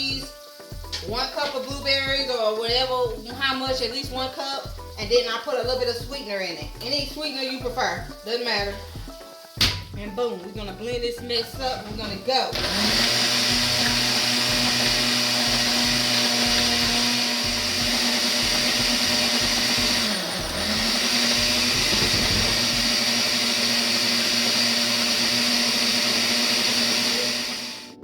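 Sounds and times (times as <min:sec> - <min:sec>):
blender motor running: 0:12.5 - 0:28.0.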